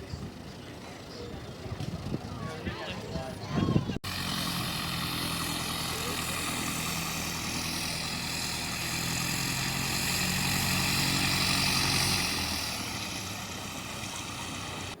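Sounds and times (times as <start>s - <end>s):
propeller plane engine: 4.0s - 15.0s.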